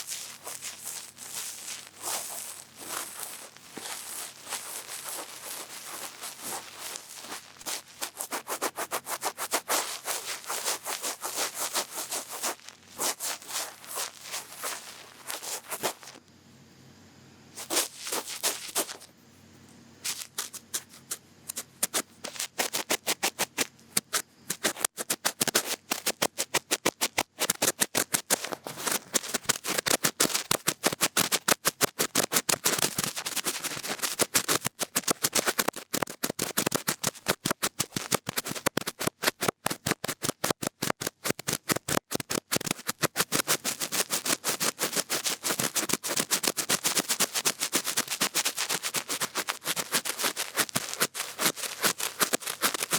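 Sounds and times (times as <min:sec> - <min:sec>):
cotton bud scraping microphone: 0:00.0 - 0:16.2, 0:17.6 - 0:19.1, 0:41.2 - 0:52.9.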